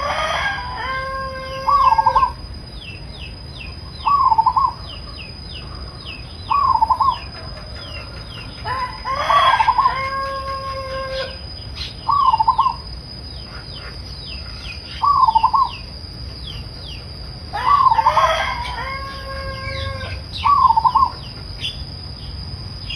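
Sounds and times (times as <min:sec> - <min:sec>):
doves cooing: 0:00.0 - 0:22.0
high insect drone: 0:00.0 - 0:22.9.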